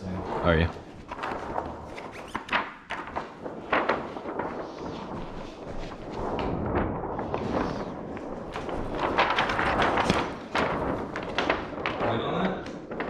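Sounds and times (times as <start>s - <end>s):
rubbing and handling noise: 0.0s - 13.0s.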